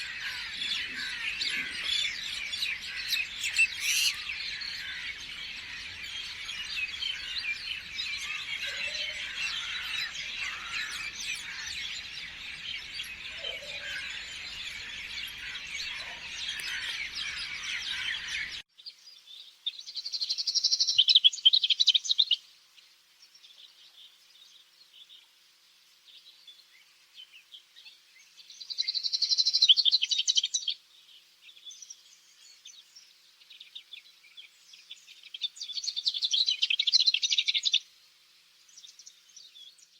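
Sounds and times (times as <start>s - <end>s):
bird trilled song: 0.0s - 18.6s
songbirds chirping chorus: 0.0s - 39.9s.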